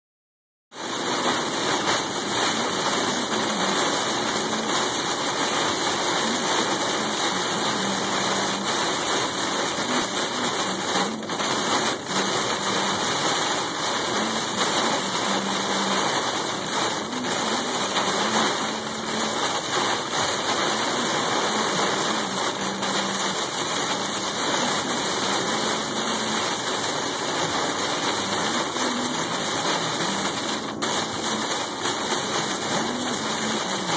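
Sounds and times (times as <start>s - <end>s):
heavy rain and wind: 0.8s - 33.9s.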